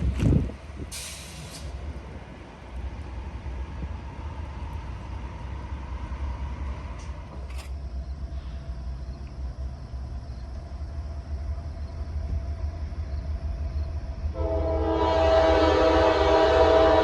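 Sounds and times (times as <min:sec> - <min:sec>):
train rumble: 0:00.0 - 0:17.0
locomotive air horn: 0:14.4 - 0:17.0.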